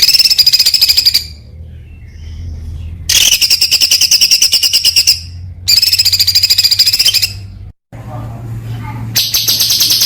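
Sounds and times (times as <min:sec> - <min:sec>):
songbird rapid trill: 0:00.0 - 0:01.4, 0:02.1 - 0:07.5, 0:09.2 - 0:10.0
steady low hum: 0:00.0 - 0:10.0.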